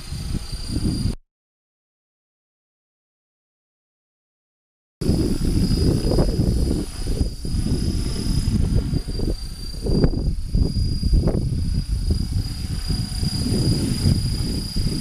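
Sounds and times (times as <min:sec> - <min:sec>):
rc helicopter motor whine: 0:00.0 - 0:01.2, 0:05.0 - 0:15.0
wind buffeting microphone: 0:00.0 - 0:01.2, 0:05.0 - 0:15.0.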